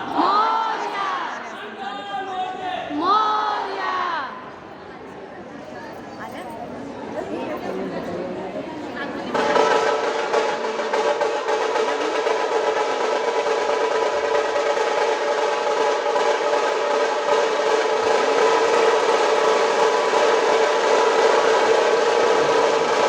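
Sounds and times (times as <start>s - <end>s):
rapid drumming: 9.3s - 23.0s.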